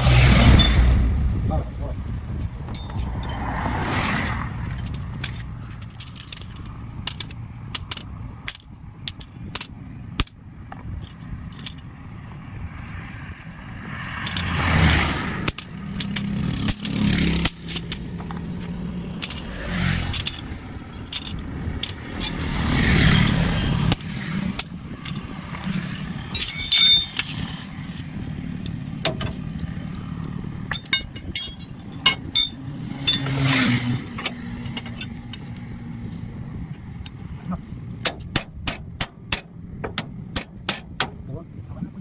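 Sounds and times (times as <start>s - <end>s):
vehicles passing: 0.0s - 42.0s
metallic clinks and knocks: 2.7s - 11.9s, 14.2s - 18.5s, 19.1s - 22.6s, 23.2s - 25.3s, 26.3s - 27.6s, 28.6s - 35.7s.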